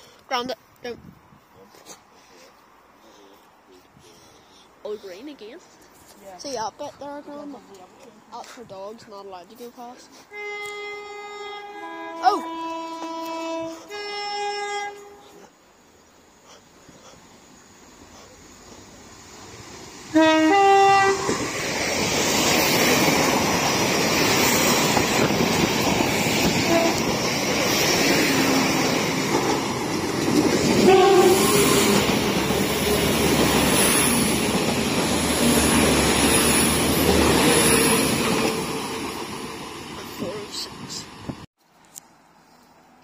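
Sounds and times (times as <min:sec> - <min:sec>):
train two-note horn: 0:10.3 - 0:15.5, 0:20.1 - 0:21.4, 0:26.6 - 0:27.1, 0:30.8 - 0:32.0
train wheel and engine noise: 0:16.8 - 0:41.5.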